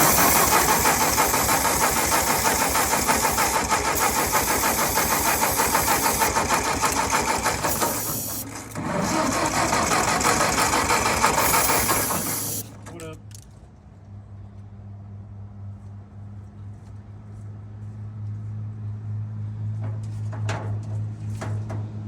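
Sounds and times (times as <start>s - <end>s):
engine starter cranking: 0.0s - 13.2s.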